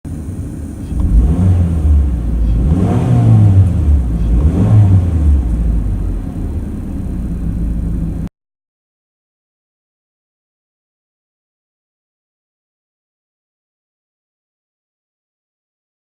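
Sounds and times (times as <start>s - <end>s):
car engine accelerating: 0.5s - 8.3s.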